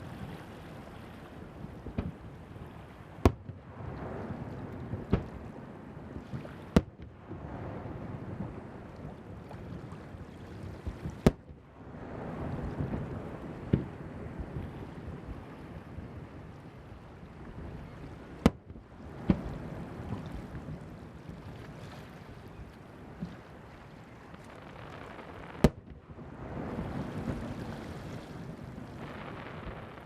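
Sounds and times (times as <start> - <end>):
wind on microphone: 0.0 - 30.0
fireworks bursting: 4.4 - 5.5, 24.5 - 26.0.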